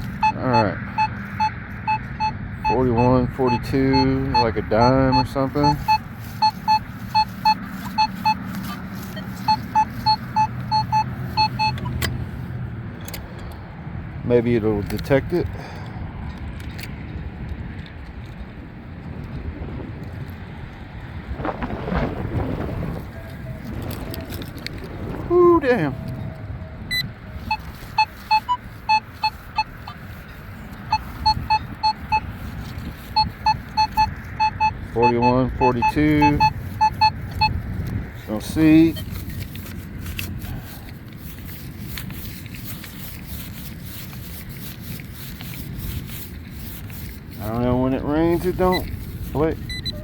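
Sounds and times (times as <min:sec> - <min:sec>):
metal detector beeps: 0:00.0 - 0:12.3, 0:26.8 - 0:50.0
wind rumble on microphone: 0:00.0 - 0:50.0.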